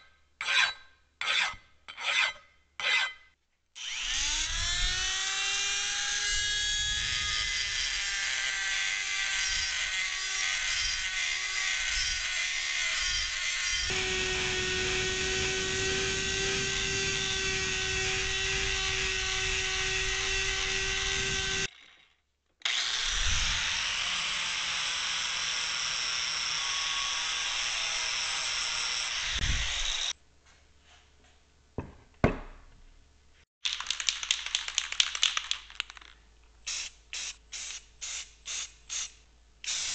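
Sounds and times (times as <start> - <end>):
die grinder whining: 3.8 - 22.0, 22.6 - 30.2
knocks: 31.8 - 32.8.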